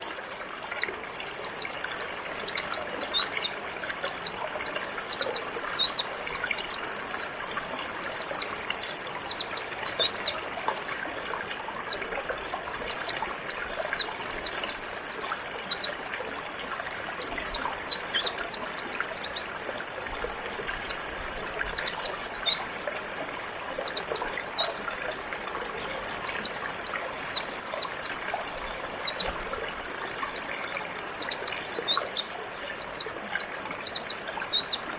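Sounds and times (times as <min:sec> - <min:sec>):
river flowing: 0:00.0 - 0:34.9
bird chirping: 0:00.6 - 0:11.0, 0:30.2 - 0:34.9.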